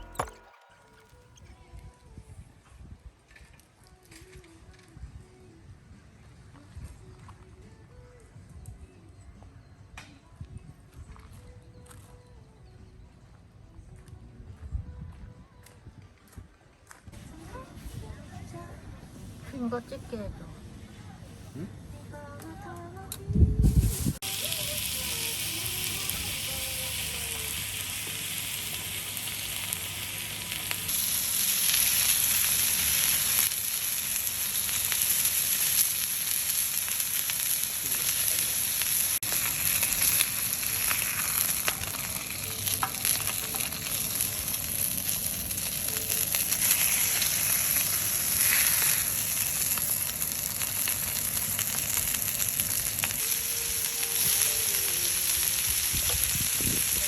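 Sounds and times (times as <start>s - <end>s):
food frying and sizzling: 23.7s - 57.0s.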